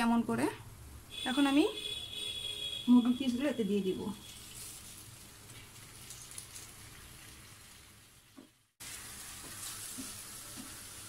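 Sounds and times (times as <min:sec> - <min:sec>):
chicken sizzling in hot oil: 0:03.8 - 0:11.0.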